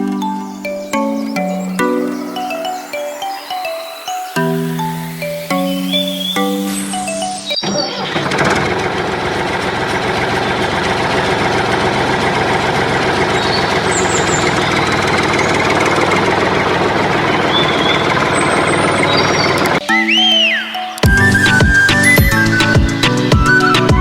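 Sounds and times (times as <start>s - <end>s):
faint high chirps: 0.0s - 8.2s
engine running steadily: 8.0s - 19.8s.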